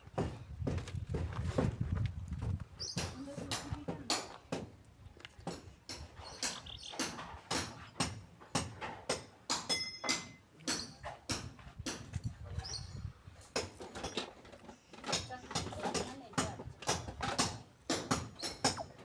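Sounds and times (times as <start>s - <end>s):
sharp knocks: 5.4s - 12.1s.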